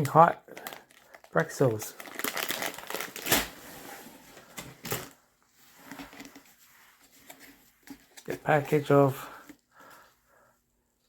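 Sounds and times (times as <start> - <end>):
plastic snack bag crinkling: 0.0 - 3.6.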